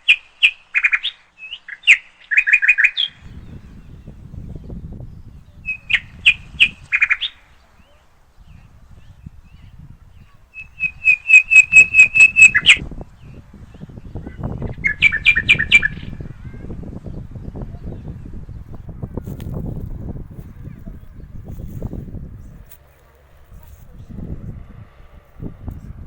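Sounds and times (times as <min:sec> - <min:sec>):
bird singing sharp notes: 0:00.0 - 0:16.2
low rumble: 0:03.1 - 0:11.0, 0:12.7 - 0:26.0.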